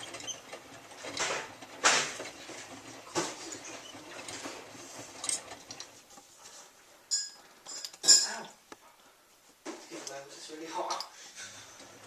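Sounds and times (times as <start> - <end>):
washing machine drum tumbling: 0.0 - 5.8.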